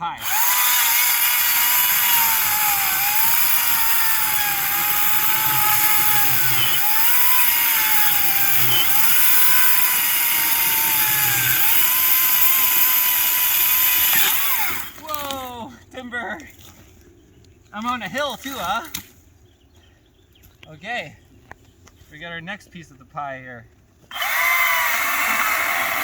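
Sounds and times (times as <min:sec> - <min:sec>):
electric chainsaw cutting log: 0:00.1 - 0:15.4, 0:24.1 - 0:26.0.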